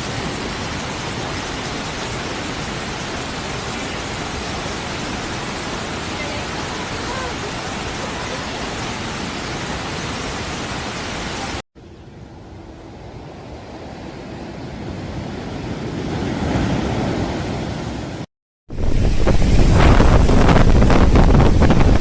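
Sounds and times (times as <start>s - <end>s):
strong wind rushing: 12.2s - 22.0s.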